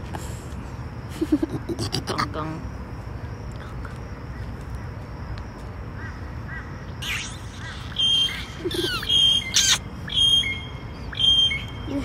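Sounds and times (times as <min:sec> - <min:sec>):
birds calling: 0:05.9 - 0:12.0.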